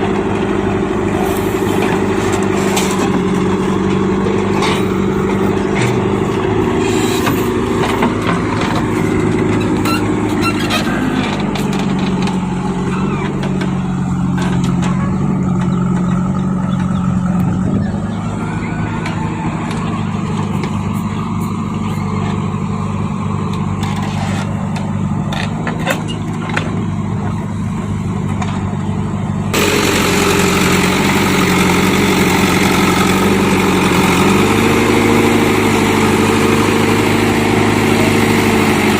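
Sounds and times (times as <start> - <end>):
heavy diesel engine running: 0.0 - 38.9
knocks and clanks: 1.7 - 17.8, 23.5 - 27.4.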